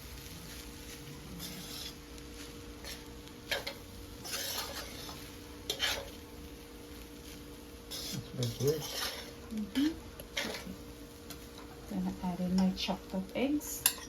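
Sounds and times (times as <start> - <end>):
light sizzle: 0.0 - 14.0
spoon scraping rice in pan: 0.5 - 6.2, 7.2 - 11.6.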